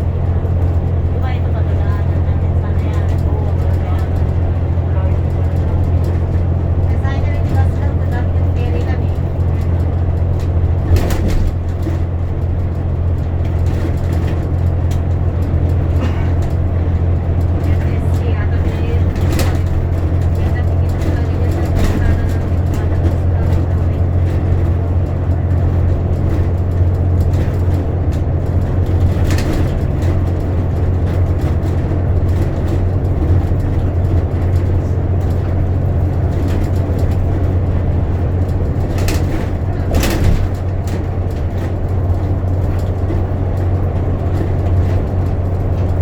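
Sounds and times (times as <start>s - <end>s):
bus engine drone: 0.0s - 46.0s
knocks and rattles: 0.0s - 46.0s
road noise: 0.0s - 46.0s.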